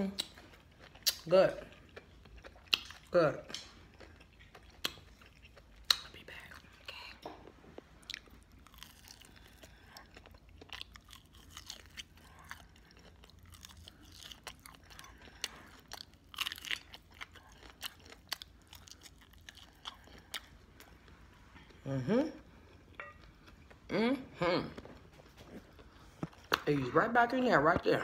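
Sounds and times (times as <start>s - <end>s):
crunchy chewing: 0.1s - 21.8s.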